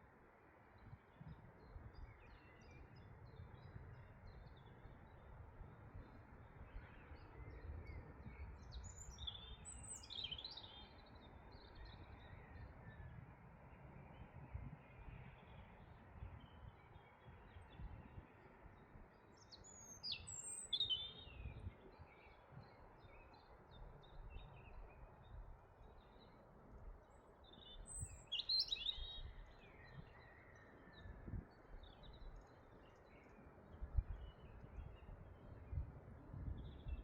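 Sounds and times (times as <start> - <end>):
songbird twittering: 27.6 - 30.5.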